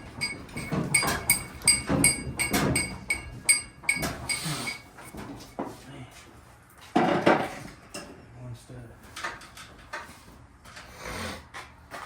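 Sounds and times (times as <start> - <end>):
metal clinking on metal: 0.2 - 4.9.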